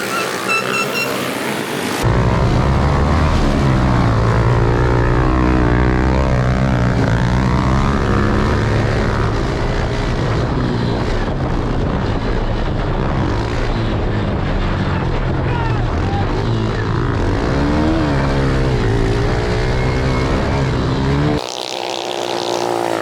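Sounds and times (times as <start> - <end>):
pit bike engines revving: 0.0 - 23.0.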